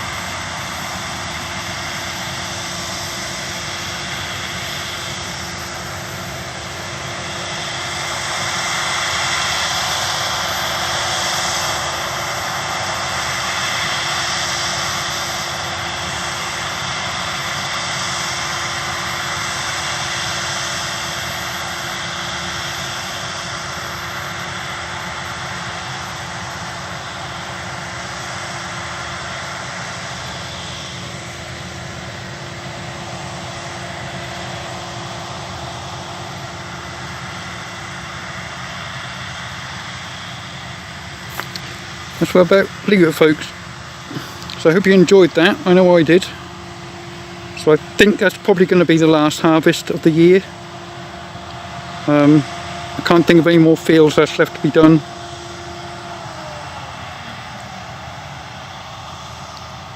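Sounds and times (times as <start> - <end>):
combine harvester droning: 0.0 - 59.9.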